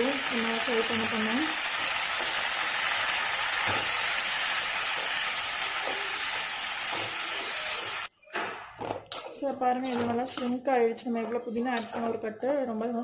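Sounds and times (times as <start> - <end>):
leaves sizzling in hot oil: 0.0 - 8.1
spatula stirring leaves: 9.1 - 10.6.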